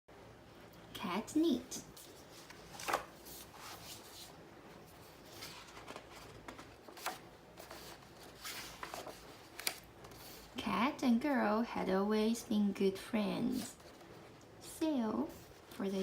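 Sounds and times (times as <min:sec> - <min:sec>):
book pages turning: 0:02.0 - 0:10.6.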